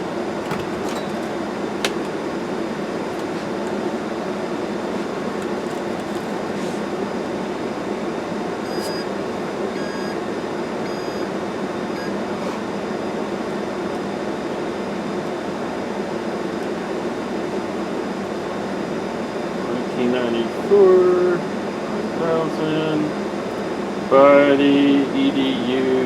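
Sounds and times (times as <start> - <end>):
blower fan whooshing: 0.0 - 8.6
short electronic beeps: 8.6 - 9.1, 9.8 - 10.2, 10.9 - 11.3.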